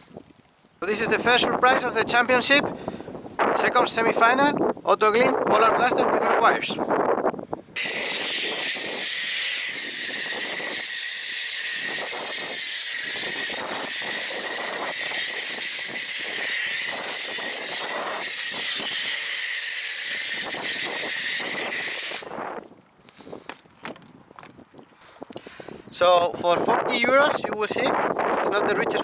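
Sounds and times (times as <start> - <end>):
foam cannon spraying hiss: 7.8 - 22.4.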